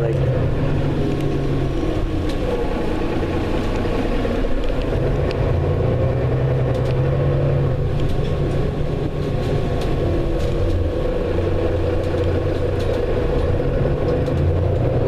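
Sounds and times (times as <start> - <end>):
bus engine drone: 0.0 - 15.0
light clicks and rattles: 7.9 - 15.0.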